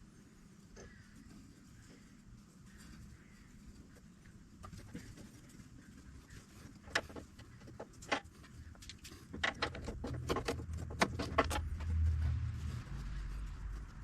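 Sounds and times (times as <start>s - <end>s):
low rumble: 10.7s - 14.0s.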